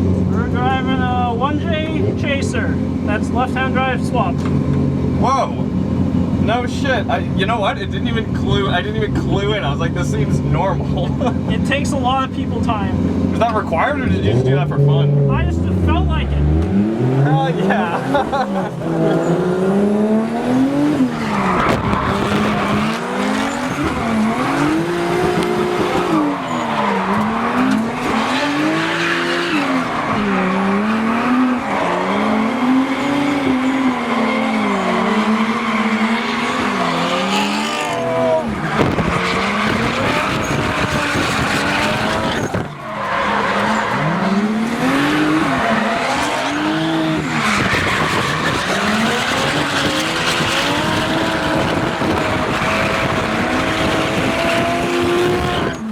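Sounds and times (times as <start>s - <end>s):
car engine revving: 0.0s - 55.9s
tyres squealing: 21.1s - 55.9s.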